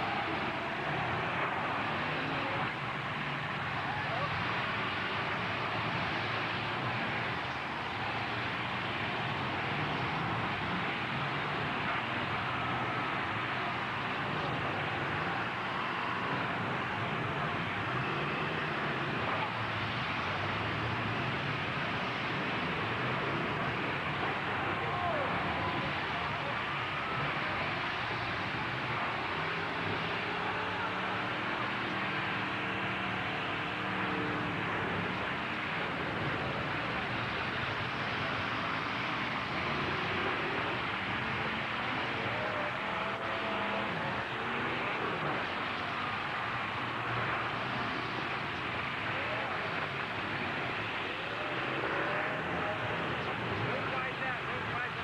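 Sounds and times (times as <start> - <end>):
truck engines running: 0.0 - 55.0.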